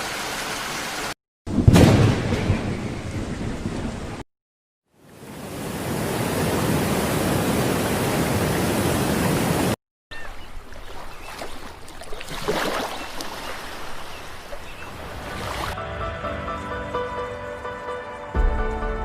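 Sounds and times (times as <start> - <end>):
rushing water: 0.0 - 1.2, 4.9 - 15.8
quieter watery noise: 4.9 - 15.8.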